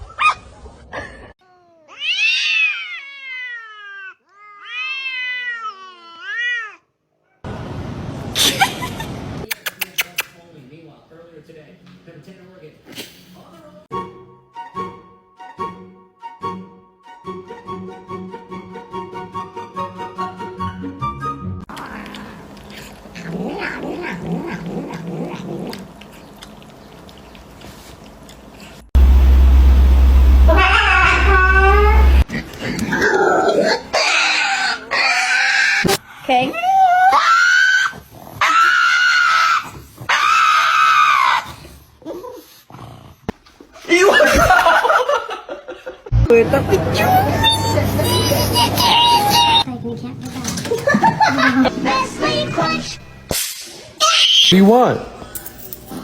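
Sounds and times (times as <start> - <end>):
cat meowing: 1.4 - 6.9, 30.5 - 32.2
steady rushing noise: 29.0 - 32.2
loud low hum: 29.0 - 32.3
cat calling: 30.5 - 32.2.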